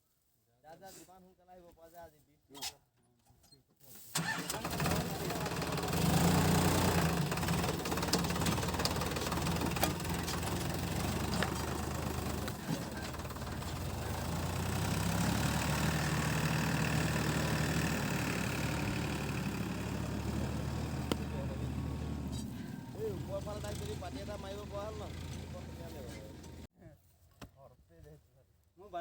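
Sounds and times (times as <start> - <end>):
tractor diesel engine running: 4.1 - 26.7.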